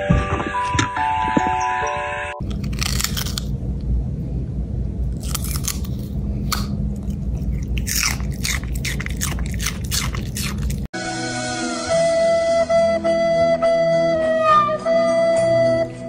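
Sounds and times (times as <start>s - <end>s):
dog crunching celery: 2.4s - 3.6s, 5.1s - 10.9s
steady low hum: 2.4s - 10.9s.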